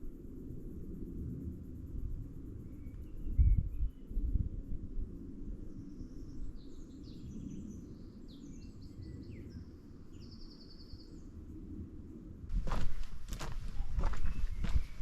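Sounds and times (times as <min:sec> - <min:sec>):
wind rumble on microphone: 0:00.0 - 0:15.0
songbird chirping and trilling: 0:02.6 - 0:04.2, 0:05.7 - 0:11.4, 0:12.6 - 0:15.0.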